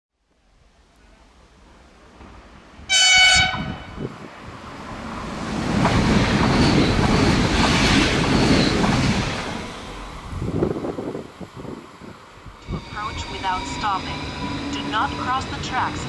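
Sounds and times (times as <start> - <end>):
train rumble: 1.0 - 16.0
train horn blast: 2.9 - 4.0.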